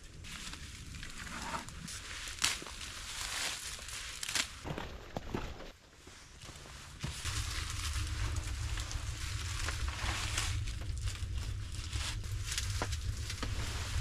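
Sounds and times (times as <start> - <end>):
low rumble: 6.2 - 14.0.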